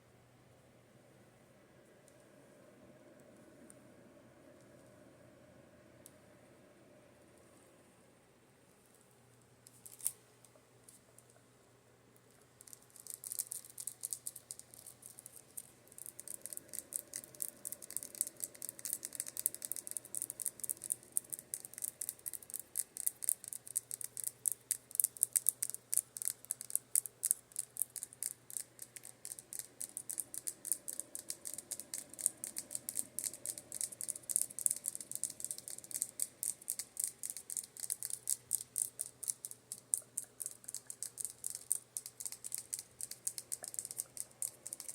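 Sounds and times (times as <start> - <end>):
fan humming: 0.0 - 8.0, 13.9 - 23.1, 27.5 - 44.9.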